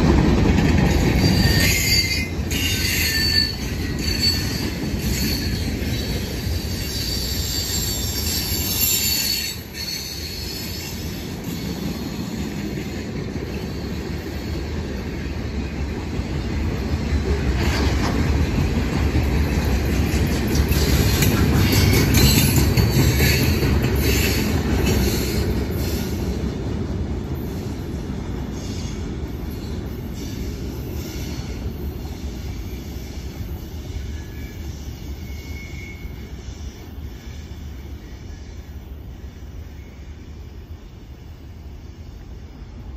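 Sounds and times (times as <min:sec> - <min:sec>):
freight train rumbling past: 0:00.0 - 0:42.9
wheel squeal: 0:00.9 - 0:12.2, 0:33.9 - 0:37.5.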